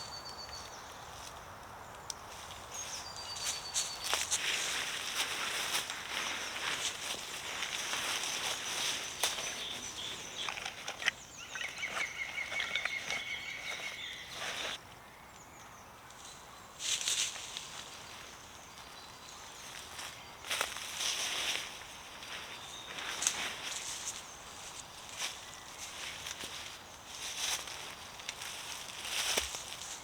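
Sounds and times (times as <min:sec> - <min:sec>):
woodland birdsong: 0:00.0 - 0:30.0
rustling and handling noises: 0:03.4 - 0:14.8.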